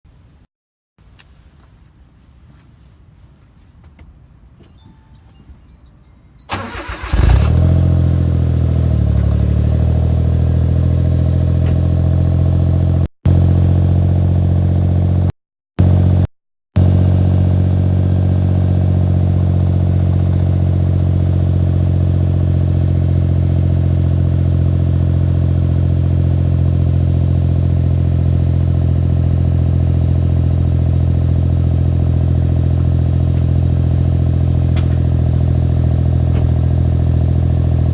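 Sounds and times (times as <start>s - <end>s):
car engine starting and idling: 6.5s - 15.3s, 16.8s - 37.9s.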